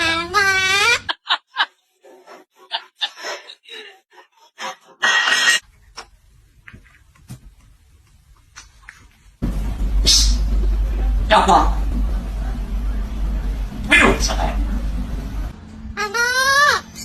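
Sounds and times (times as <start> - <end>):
parrot harsh squawk: 0.0 - 1.1, 5.0 - 5.6, 16.0 - 17.0
parrot calling: 0.0 - 1.2, 16.0 - 17.0.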